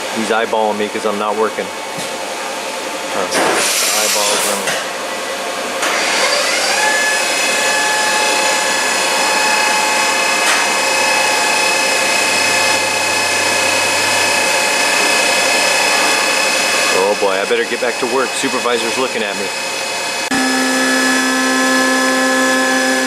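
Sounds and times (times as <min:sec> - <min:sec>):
power tool whining: 0:05.8 - 0:23.0.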